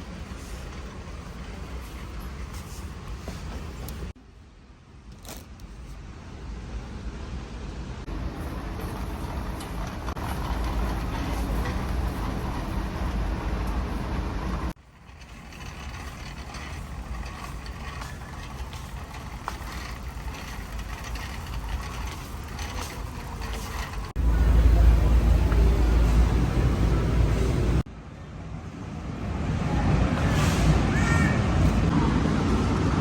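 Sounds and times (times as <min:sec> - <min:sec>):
low background rumble: 0:05.8 - 0:28.6.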